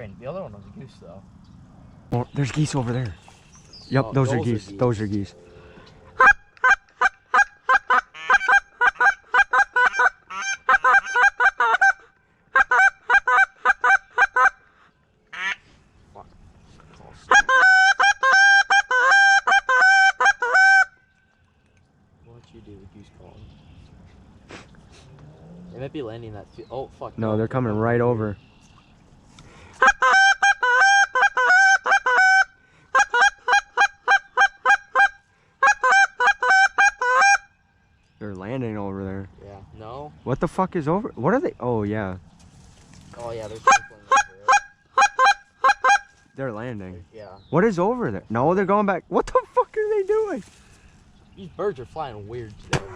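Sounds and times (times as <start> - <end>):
goose call honks and clucks: 5.3 - 15.6, 17.2 - 21.0, 29.8 - 37.6, 43.5 - 46.2.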